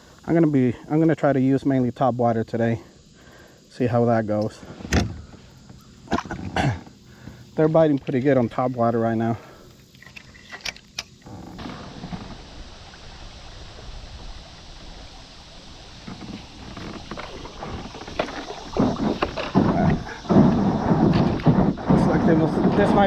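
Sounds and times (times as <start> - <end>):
water and wind hissing: 0.0 - 23.0
kayak bumps and splashes: 6.0 - 6.9, 11.3 - 23.0.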